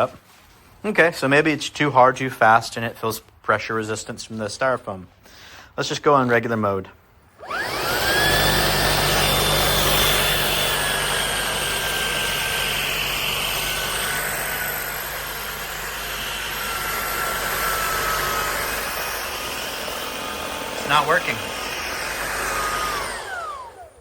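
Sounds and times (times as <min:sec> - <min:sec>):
stick vacuum running: 0:07.4 - 0:24.0.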